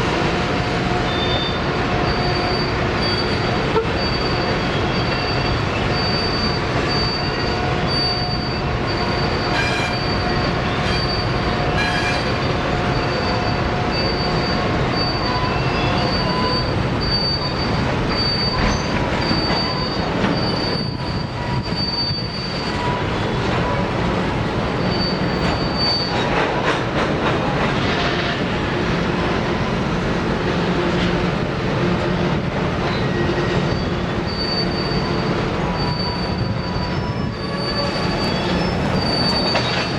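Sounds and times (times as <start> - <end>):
freight train rolling: 0.0 - 39.9
steel wheels squealing: 0.2 - 39.9.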